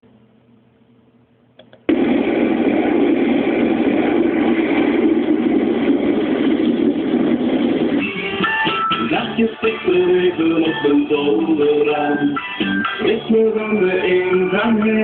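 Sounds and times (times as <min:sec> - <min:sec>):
music: 0:07.9 - 0:15.0.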